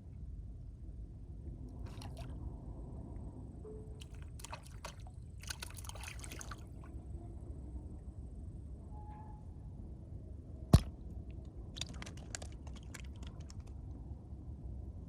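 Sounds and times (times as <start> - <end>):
steady low rumble: 0.0 - 15.0
water splashing and trickling: 1.8 - 2.4, 4.0 - 7.0.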